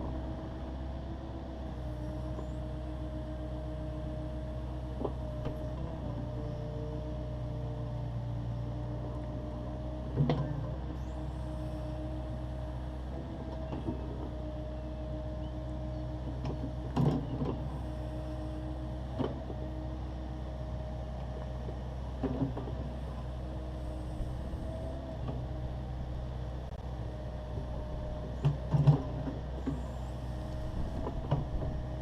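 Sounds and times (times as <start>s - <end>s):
excavator engine running: 0.0s - 32.0s.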